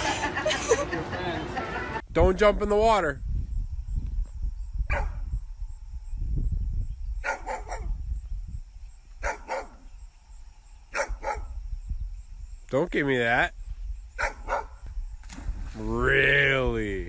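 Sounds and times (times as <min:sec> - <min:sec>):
dog barking: 0:04.9 - 0:05.2, 0:07.2 - 0:08.0, 0:09.2 - 0:09.8, 0:10.9 - 0:11.6, 0:14.2 - 0:14.8.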